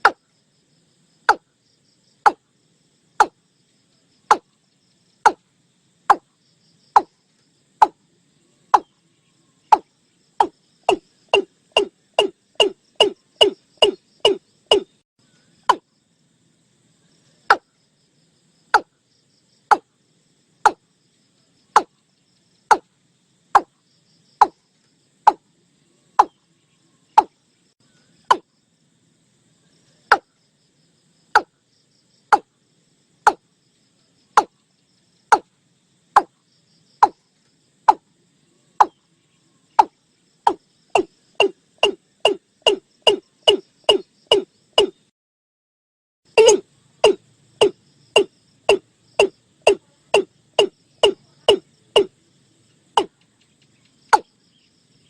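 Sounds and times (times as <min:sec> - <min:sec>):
watercock calling hollow notes: 0:09.7 - 0:14.9, 0:46.4 - 0:52.1.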